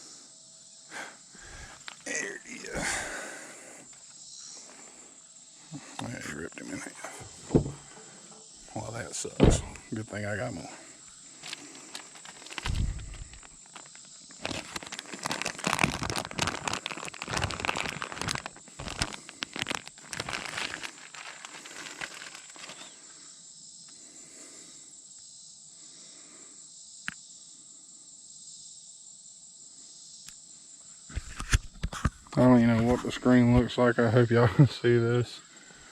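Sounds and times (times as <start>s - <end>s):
crinkling handling noise: 1.4s - 2.1s, 5.8s - 9.9s, 11.1s - 23.1s.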